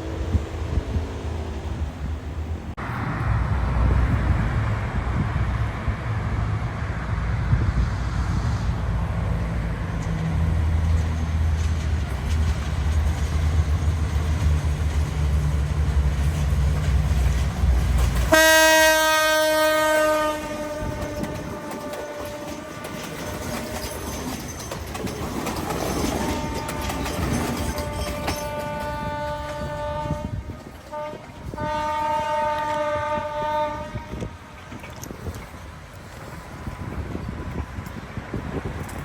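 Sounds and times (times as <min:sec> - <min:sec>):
diesel locomotive engine rumbling: 0:00.0 - 0:39.0
train horn blast: 0:18.3 - 0:24.0, 0:26.2 - 0:34.6.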